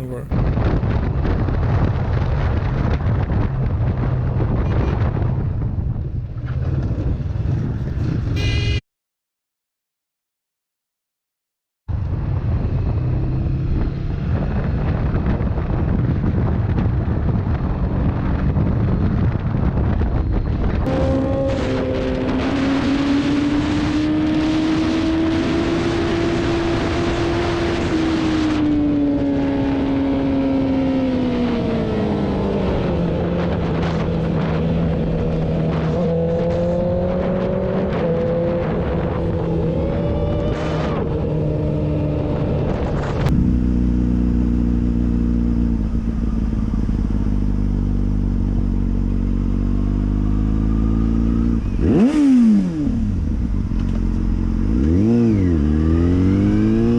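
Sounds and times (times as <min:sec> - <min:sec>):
wind rush over microphone: 0:00.0 - 0:08.4, 0:11.9 - 0:44.0
motorcycle engine running: 0:41.3 - 0:56.9.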